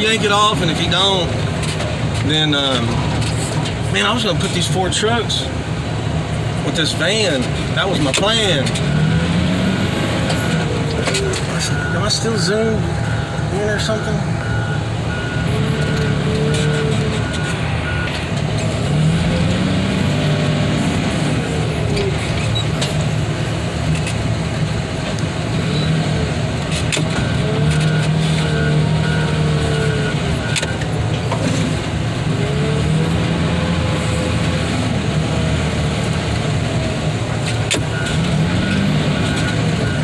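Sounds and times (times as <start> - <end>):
heavy equipment engine whining: 0.0 - 40.0
faint beeping: 8.8 - 18.2.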